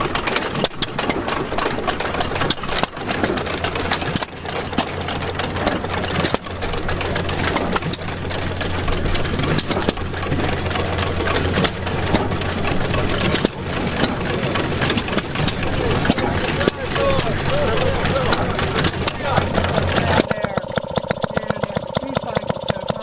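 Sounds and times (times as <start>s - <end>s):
old gas engine running: 0.0s - 23.0s.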